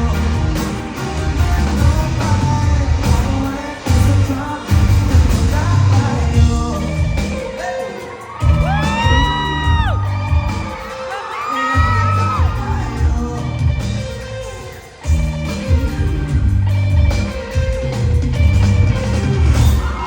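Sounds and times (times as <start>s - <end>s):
bass: 0.0s - 7.7s, 8.4s - 10.9s, 11.7s - 20.0s
person singing: 0.0s - 16.2s
drums: 0.0s - 20.0s
crowd whooping: 5.6s - 20.0s.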